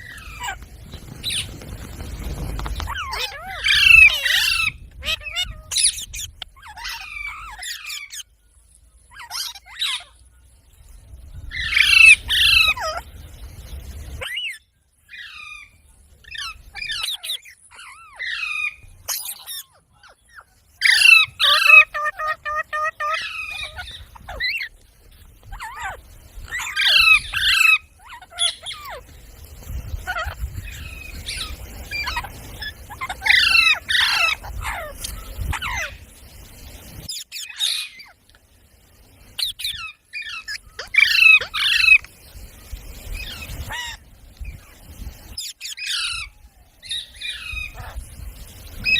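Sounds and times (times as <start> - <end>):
parrot squawking and chirping: 0.0 - 0.6, 1.2 - 8.3, 9.1 - 10.2, 11.5 - 13.1, 14.2 - 24.8, 25.4 - 29.0, 30.0 - 36.0, 37.0 - 38.2, 39.4 - 42.1, 43.1 - 44.0, 45.3 - 48.0.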